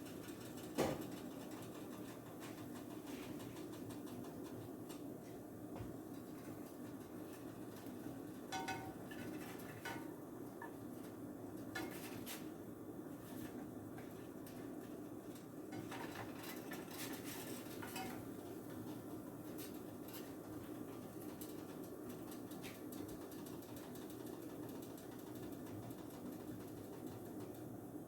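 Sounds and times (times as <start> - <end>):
utensil clinking against pan: 8.5 - 10.1.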